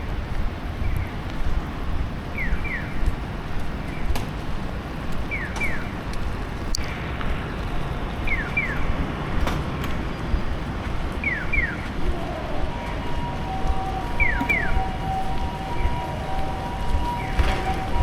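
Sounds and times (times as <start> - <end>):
rain hiss: 0.0 - 18.0
street traffic: 0.0 - 18.0
electronic crossing signal chirps: 11.2 - 18.0.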